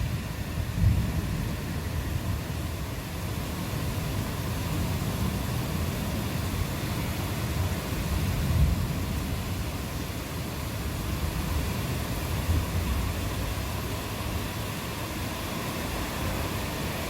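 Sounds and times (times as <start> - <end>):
low rumble of thunder: 0.0 - 2.8, 7.6 - 10.1
steady rain hiss: 0.0 - 17.0.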